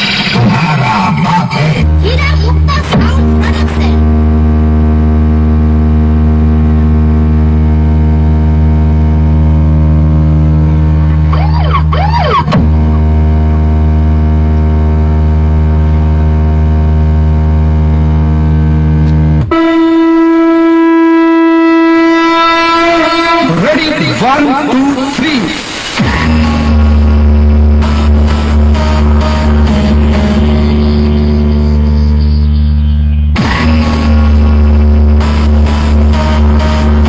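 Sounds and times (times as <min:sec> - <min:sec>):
horn-like electronic drone: 0:00.0 - 0:37.0
higher held electronic tone: 0:01.8 - 0:24.9, 0:26.1 - 0:37.0.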